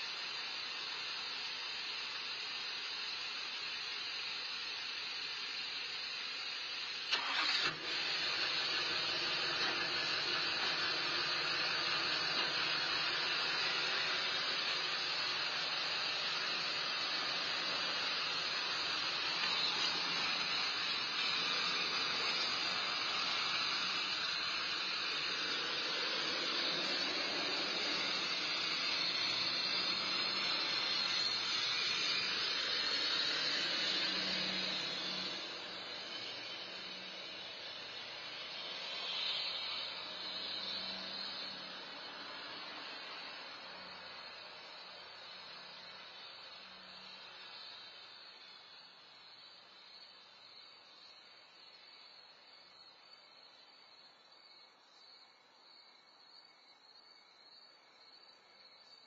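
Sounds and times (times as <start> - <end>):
constant hiss: 0.0 - 59.0
vehicle engine starting and running: 6.8 - 48.8.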